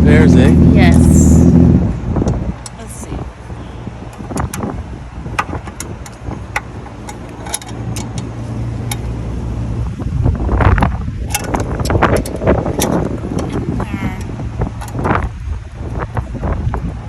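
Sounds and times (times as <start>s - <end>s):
low hum of vehicles: 0.0s - 17.0s
metallic clicks of hand tools: 5.7s - 9.1s.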